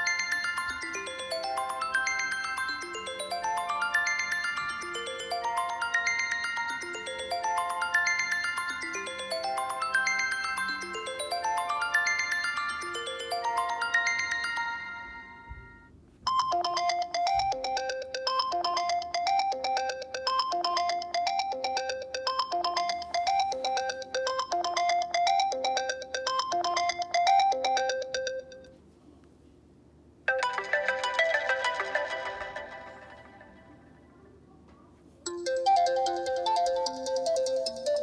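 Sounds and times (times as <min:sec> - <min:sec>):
bright phone ringtone: 0:00.0 - 0:28.7, 0:30.3 - 0:34.0, 0:35.3 - 0:38.0
phone ringtone melody: 0:00.0 - 0:28.7, 0:30.3 - 0:34.0, 0:35.3 - 0:38.0.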